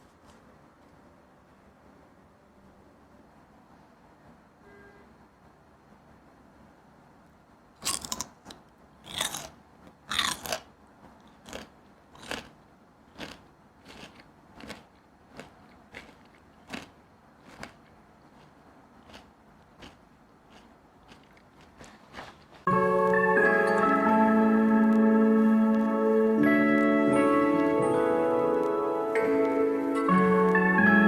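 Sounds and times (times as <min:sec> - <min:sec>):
person crunching crisp food: 0:07.8 - 0:10.7, 0:11.3 - 0:22.7
crunchy chewing: 0:07.8 - 0:22.7.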